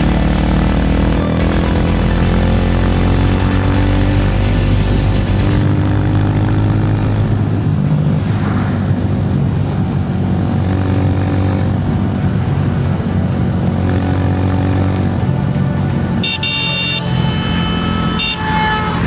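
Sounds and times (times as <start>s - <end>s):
motorcycle engine running: 0.0s - 7.9s.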